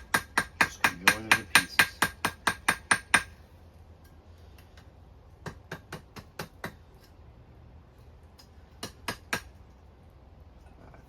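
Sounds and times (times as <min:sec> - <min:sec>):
hammer on hot metal on anvil: 0:00.0 - 0:03.4, 0:05.4 - 0:06.8, 0:08.8 - 0:09.5.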